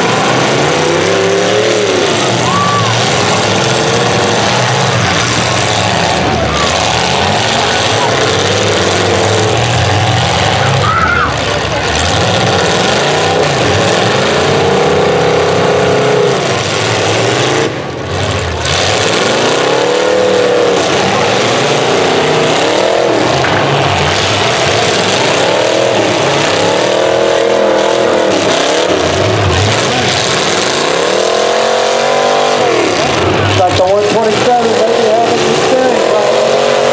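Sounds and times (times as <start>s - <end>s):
car engines revving hard: 0.0s - 36.9s.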